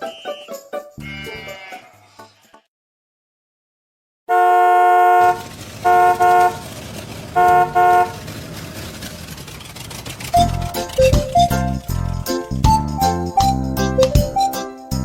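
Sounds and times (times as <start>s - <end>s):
vehicle horn honking: 4.3s - 8.3s
low engine-like rumble: 5.2s - 12.8s.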